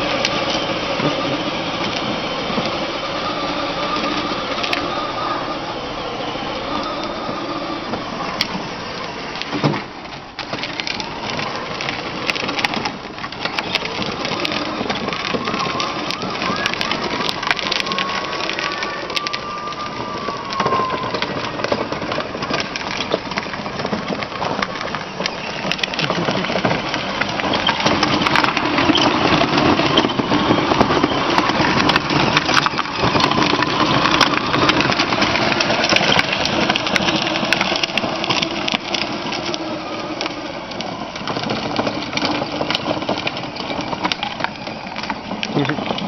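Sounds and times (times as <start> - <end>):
plastic wheels clattering over ground: 0.0 - 46.0.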